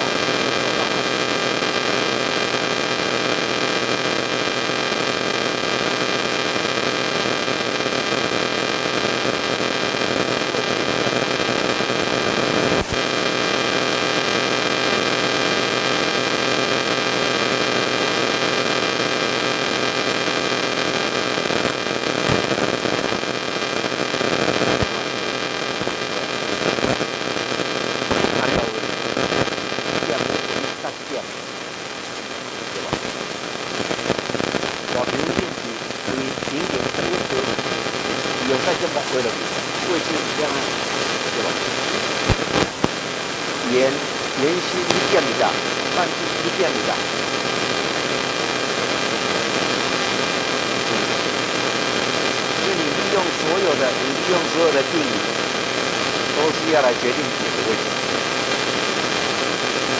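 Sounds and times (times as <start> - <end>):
electrical hum: 0.0 - 59.9
steady hiss: 20.6 - 59.9.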